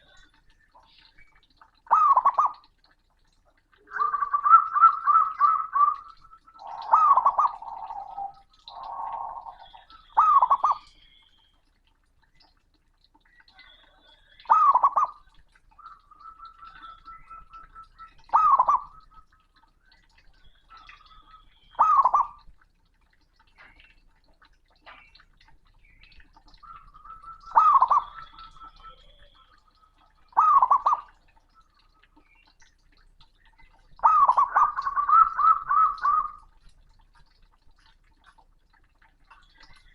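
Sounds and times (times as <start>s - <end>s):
dove cooing: 1.9s - 2.7s, 3.7s - 10.9s, 13.6s - 19.4s, 20.7s - 22.5s, 26.6s - 32.2s, 34.0s - 36.5s
faint high chirps: 25.8s - 32.6s.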